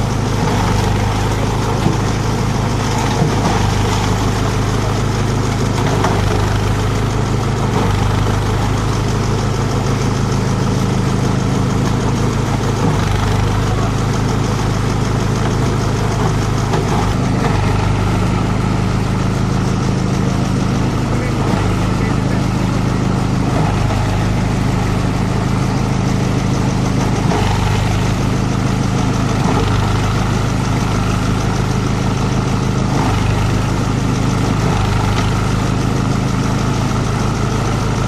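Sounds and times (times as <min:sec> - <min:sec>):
chopper machine droning: 0:00.0 - 0:38.0.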